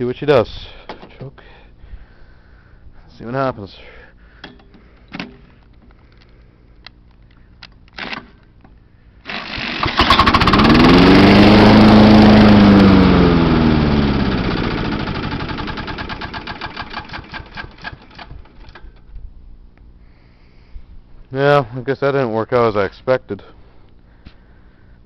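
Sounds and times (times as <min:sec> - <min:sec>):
small engine catching and dying: 0:09.3 - 0:12.4.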